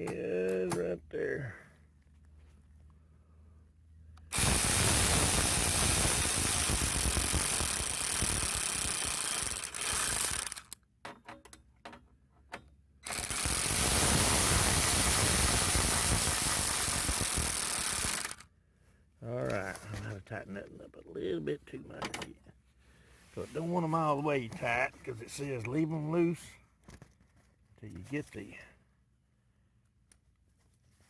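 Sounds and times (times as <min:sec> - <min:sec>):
power tool driving bolts: 0:04.2 - 0:12.0, 0:12.6 - 0:18.4.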